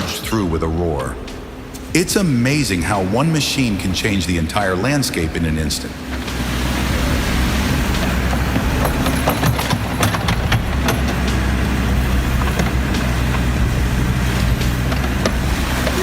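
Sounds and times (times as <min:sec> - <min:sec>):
constant noisy hiss: 0:00.0 - 0:16.0
heavy vehicle engine running: 0:01.0 - 0:16.0
sharp knocks and clicks: 0:06.0 - 0:16.0.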